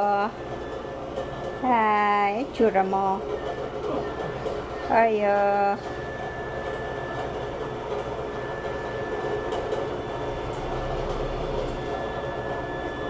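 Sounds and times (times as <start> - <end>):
mechanical hum: 0.0 - 13.0
high steady whine: 3.4 - 13.0.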